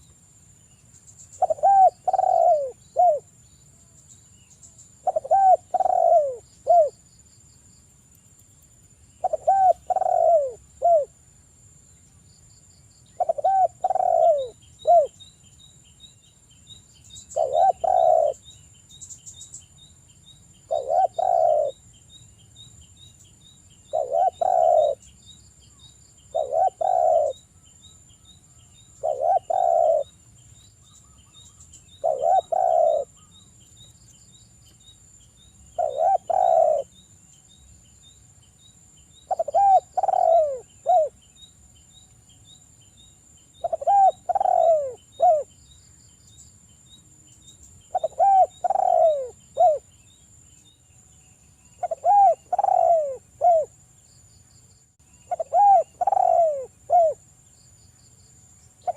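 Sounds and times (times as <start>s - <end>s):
faint fast ticking chirp: 0.0s - 11.2s, 11.8s - 58.9s
dove cooing: 1.4s - 3.3s, 5.0s - 7.0s, 9.2s - 11.2s, 13.2s - 15.2s, 17.3s - 18.4s, 20.7s - 21.8s, 23.9s - 25.0s, 26.3s - 27.4s, 29.0s - 30.2s, 31.9s - 33.3s, 35.8s - 36.9s, 39.3s - 41.2s, 43.6s - 45.5s, 47.9s - 49.8s, 51.8s - 53.7s, 55.3s - 57.2s.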